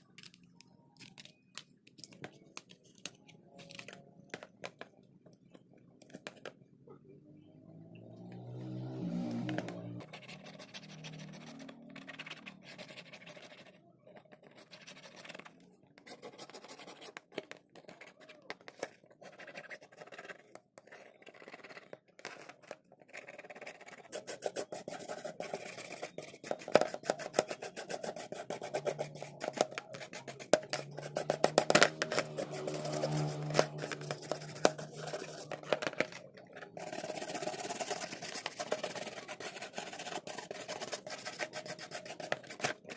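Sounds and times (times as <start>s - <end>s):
hand tools scraping a phone: 9.3s - 15.4s, 16.1s - 42.9s.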